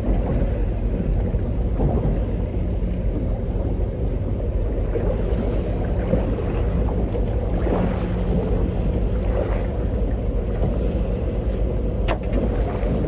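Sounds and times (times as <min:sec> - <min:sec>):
boat engine hum: 0:00.0 - 0:13.0
water noise: 0:00.0 - 0:13.0.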